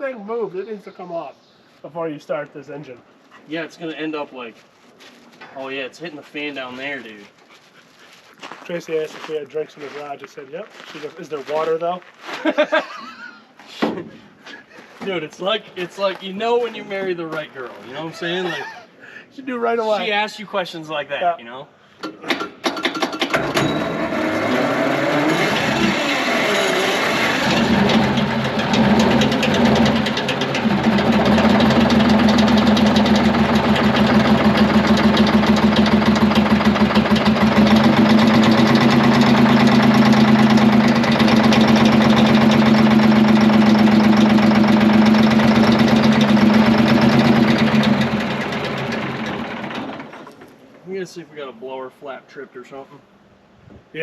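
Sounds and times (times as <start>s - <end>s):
diesel engine cranking on starter: 22.3s - 50.6s.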